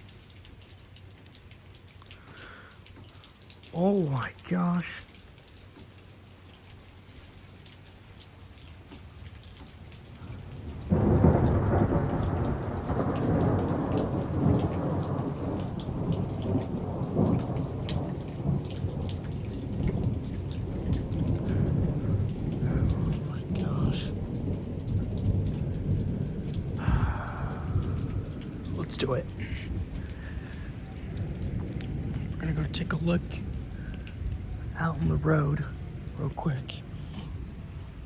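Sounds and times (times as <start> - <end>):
rain: 0.0 - 38.0
thunder rumbling: 10.2 - 38.0.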